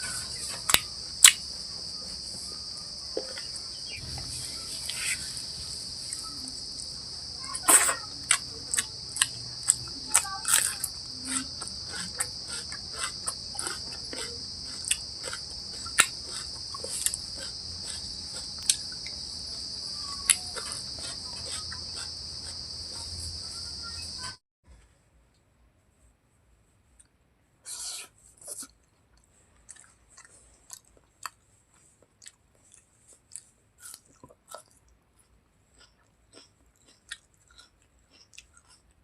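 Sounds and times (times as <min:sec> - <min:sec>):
crickets trilling: 0:00.0 - 0:24.4
person eating with wet clicks: 0:00.5 - 0:01.5, 0:07.7 - 0:19.5, 0:20.2 - 0:22.6, 0:28.6 - 0:31.4, 0:32.0 - 0:39.0.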